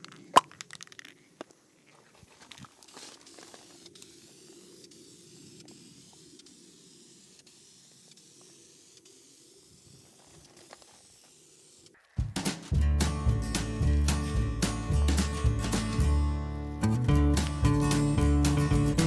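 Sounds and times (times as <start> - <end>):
spray paint hissing: 2.8 - 12.7.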